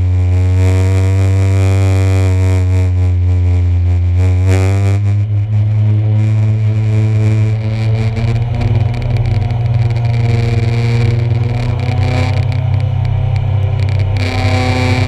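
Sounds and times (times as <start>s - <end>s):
racing car engines revving: 4.0s - 15.0s.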